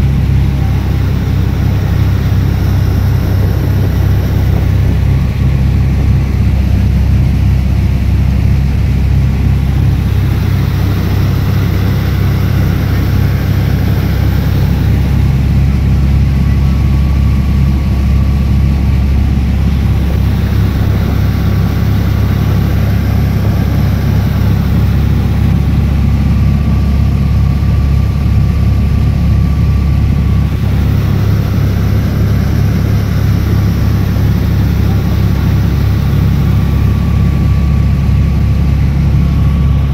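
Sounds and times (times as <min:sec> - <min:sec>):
boat engine droning: 0:00.0 - 0:39.9
wind: 0:00.0 - 0:39.9
water rushing: 0:00.1 - 0:05.6, 0:09.6 - 0:15.7, 0:19.0 - 0:25.9, 0:30.4 - 0:37.2.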